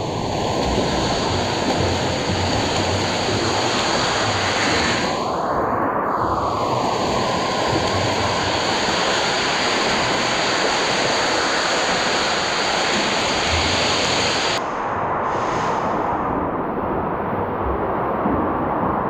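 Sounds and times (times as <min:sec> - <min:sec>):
water splashing in a pool: 0:00.0 - 0:14.6.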